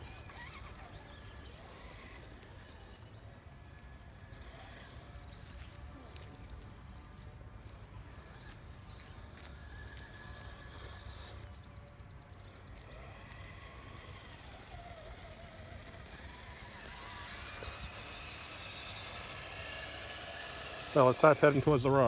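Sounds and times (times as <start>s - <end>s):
electric motor whine: 0.0s - 22.0s.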